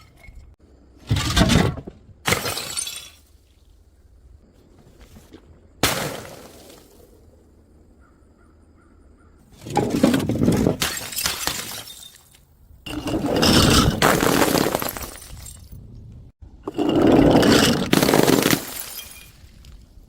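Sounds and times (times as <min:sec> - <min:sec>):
glass clattering and crunching: 0:00.0 - 0:03.2, 0:09.6 - 0:15.8, 0:16.7 - 0:19.8
glass smashing: 0:02.3 - 0:03.2, 0:09.9 - 0:15.7, 0:16.9 - 0:19.5.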